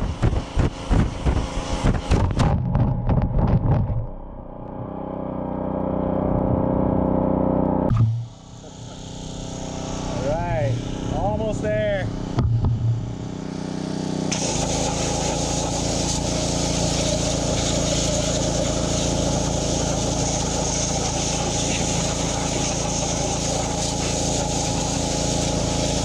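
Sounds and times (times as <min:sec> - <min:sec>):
pressure washer engine running: 0:00.0 - 0:02.6, 0:07.9 - 0:26.0
short low rumble: 0:02.1 - 0:05.0, 0:12.1 - 0:13.4
high-pressure water spray hissing: 0:08.3 - 0:12.4, 0:13.0 - 0:26.0.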